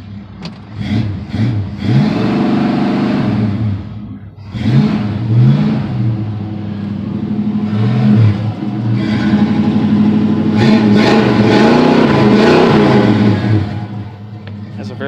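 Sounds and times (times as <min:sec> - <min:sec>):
engine idling and revving: 0:00.0 - 0:15.0.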